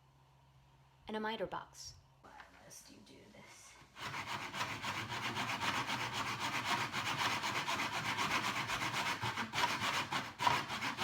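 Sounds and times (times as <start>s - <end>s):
hand saw cutting wood: 4.0s - 11.0s.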